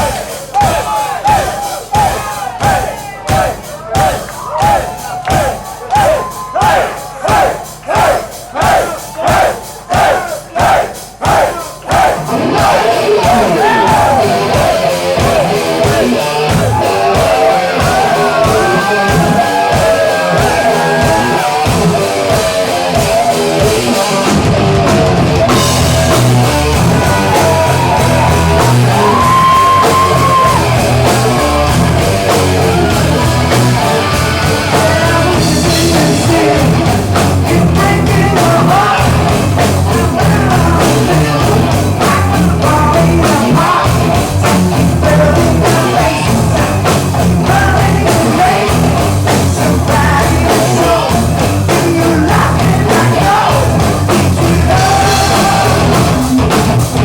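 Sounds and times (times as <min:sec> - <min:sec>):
bass and drums: 0:00.0 - 0:57.0
live hard rock band: 0:00.0 - 0:57.0
person singing: 0:11.6 - 0:24.2, 0:26.5 - 0:44.2, 0:44.8 - 0:46.8, 0:47.4 - 0:57.0
electric guitar: 0:12.2 - 0:57.0.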